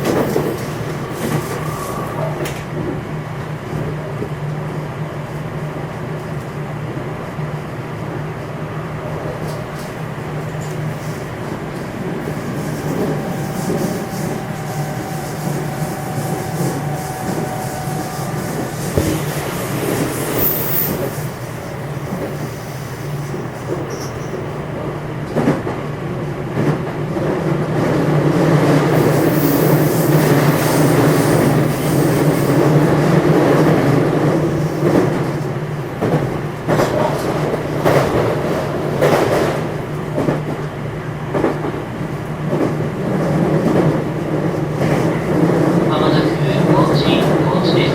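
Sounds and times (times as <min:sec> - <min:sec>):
rail-joint clicks: 0:00.0 - 0:02.8
train wheels rumbling on rail: 0:00.0 - 0:47.9.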